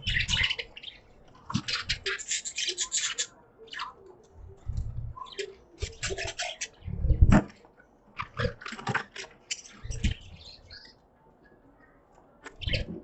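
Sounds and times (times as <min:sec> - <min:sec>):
budgerigars chattering: 0:00.0 - 0:01.0, 0:01.6 - 0:04.0.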